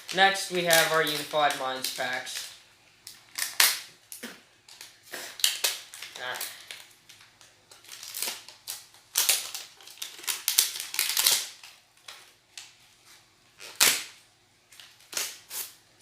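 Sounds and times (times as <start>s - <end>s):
foil packs crinkling: 0.0s - 12.8s.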